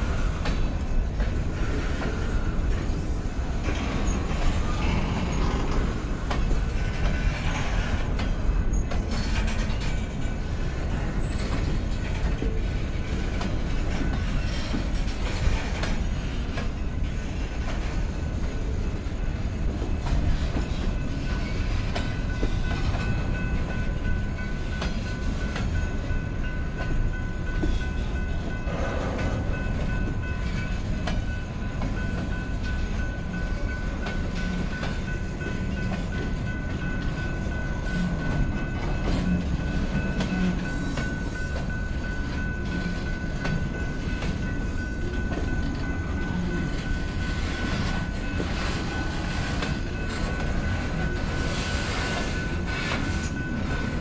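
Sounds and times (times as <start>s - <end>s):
freight train wheels rumbling: 0.0s - 54.0s
clicks at rail joints: 3.6s - 10.1s, 11.2s - 16.8s.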